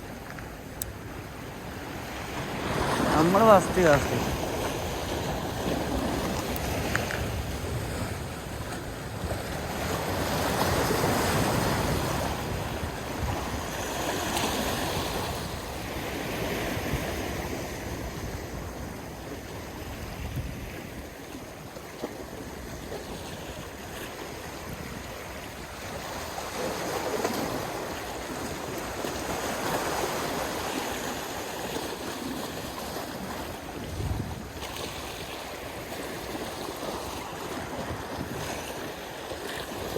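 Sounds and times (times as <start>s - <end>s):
water washing in swells: 0.7s - 39.9s
wind on microphone: 3.8s - 21.2s, 33.2s - 35.4s.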